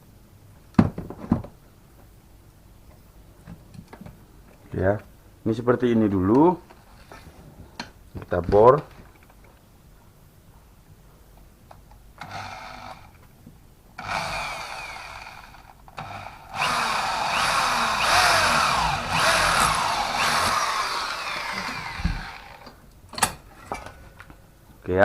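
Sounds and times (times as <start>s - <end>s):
electric drill boring into metal: 12.2s - 13.1s, 14.0s - 22.7s.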